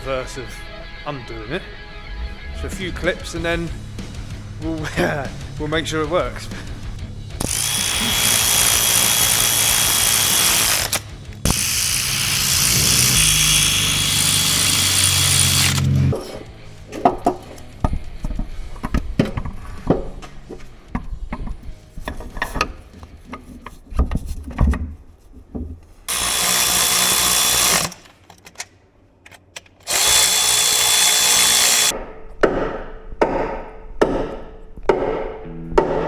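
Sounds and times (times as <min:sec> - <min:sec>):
power tool running: 0:07.4 - 0:17.0, 0:26.1 - 0:28.1, 0:29.8 - 0:32.0
hand tools knocking on metal: 0:16.1 - 0:23.7, 0:31.8 - 0:36.0.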